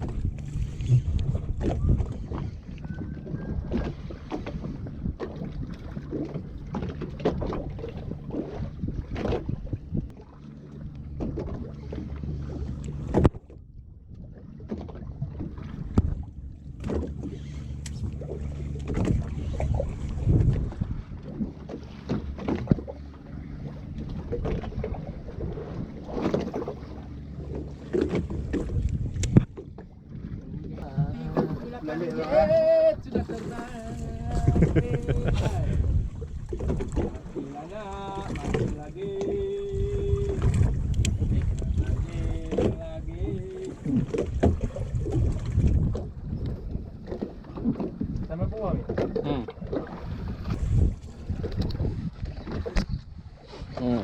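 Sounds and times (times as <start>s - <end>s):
wind buffeting microphone: 0.0s - 10.2s, 10.8s - 54.0s
water slapping against hull: 0.0s - 54.0s
low steady hum: 4.9s - 47.0s.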